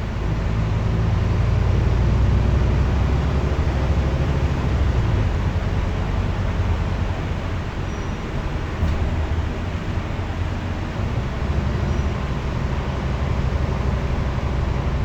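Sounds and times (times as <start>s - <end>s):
bus diesel engine under load: 0.0s - 15.0s
road noise: 0.0s - 15.0s.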